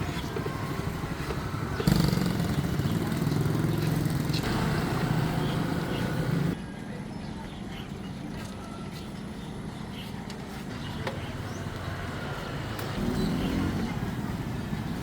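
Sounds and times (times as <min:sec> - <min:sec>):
vehicle engine running: 0:00.0 - 0:06.6
road noise: 0:00.0 - 0:15.0.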